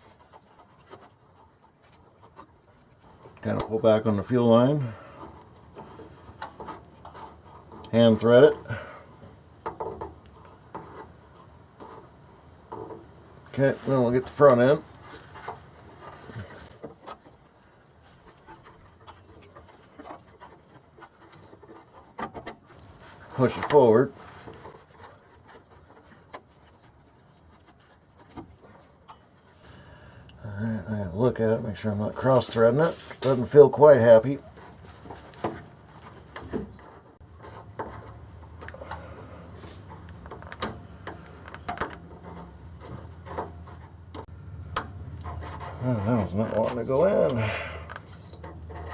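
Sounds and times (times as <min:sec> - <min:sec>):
metallic clicks and scrapes: 0:31.2 - 0:48.9.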